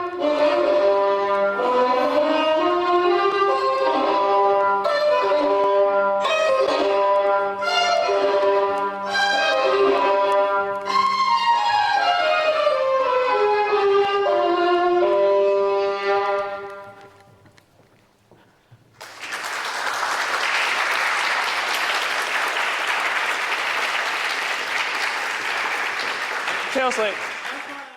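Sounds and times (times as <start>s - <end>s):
violin playing long held notes: 0.0s - 17.1s
applause: 19.0s - 27.9s.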